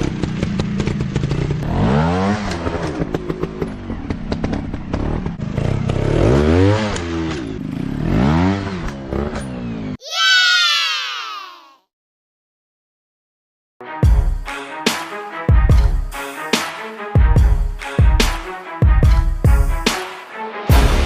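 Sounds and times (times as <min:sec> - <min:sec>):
motocross bike engines revving: 0:00.0 - 0:10.0.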